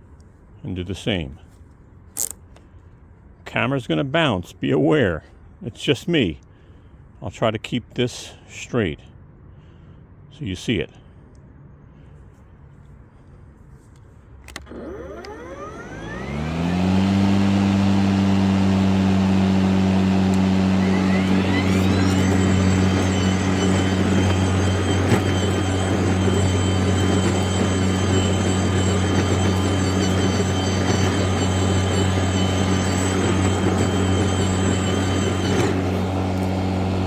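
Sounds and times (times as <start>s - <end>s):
electric mower motor whine: 14.5s - 37.0s
higher-pitched whine: 15.0s - 37.0s.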